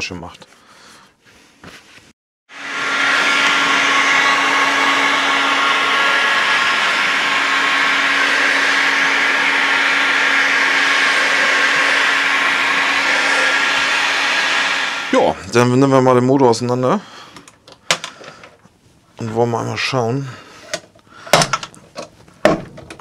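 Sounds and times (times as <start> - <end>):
heat gun blowing: 2.5 - 15.6.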